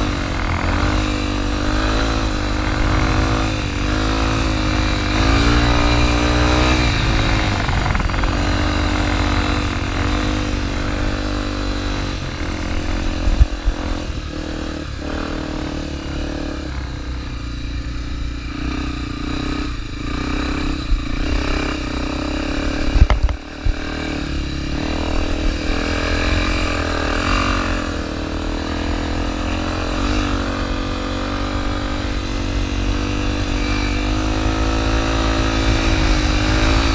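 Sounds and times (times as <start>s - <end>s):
motorcycle engine revving: 0.0s - 36.9s
sharp knocks: 23.0s - 23.4s.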